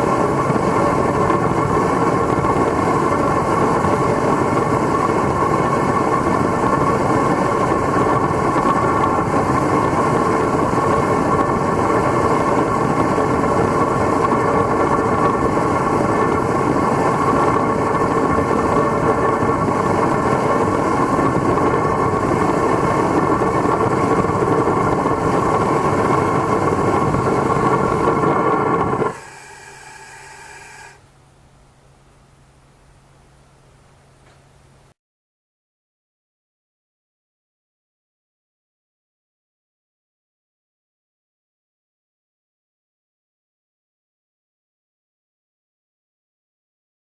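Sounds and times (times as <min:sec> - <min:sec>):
burner flame and forced air rushing: 0:00.0 - 0:31.0.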